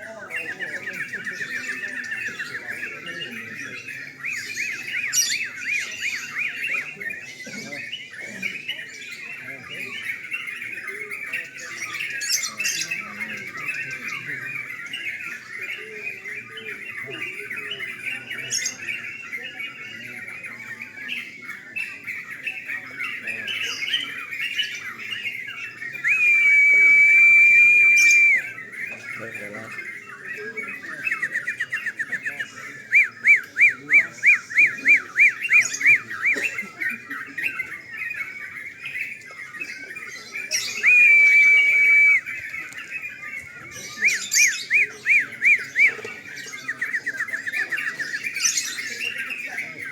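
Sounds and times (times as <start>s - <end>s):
birds chattering and calling: 0.0s - 49.9s
loud steady bird whistle: 26.0s - 28.6s, 32.8s - 36.4s, 40.6s - 42.4s.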